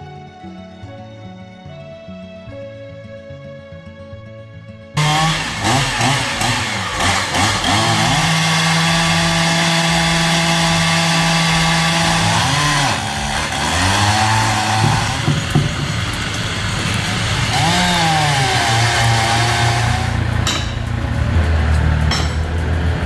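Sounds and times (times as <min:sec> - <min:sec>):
chainsaw running: 0:05.0 - 0:23.0.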